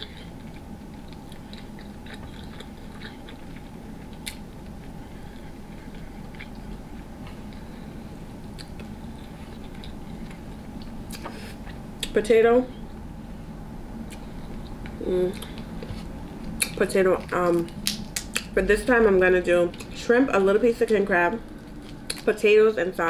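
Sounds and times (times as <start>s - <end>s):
wet chewing sounds: 0.0s - 11.3s, 14.0s - 18.5s, 21.5s - 22.3s.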